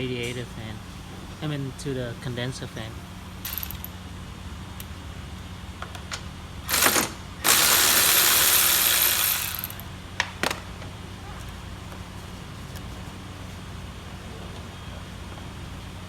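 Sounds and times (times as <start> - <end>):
ratchet wrench ratcheting: 3.4 - 4.0, 6.7 - 9.9.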